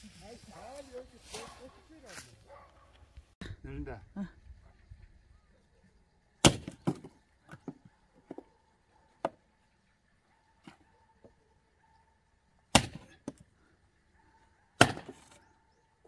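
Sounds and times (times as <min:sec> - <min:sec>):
axe splitting firewood: 0:06.4 - 0:08.4, 0:12.7 - 0:13.5, 0:14.8 - 0:15.4.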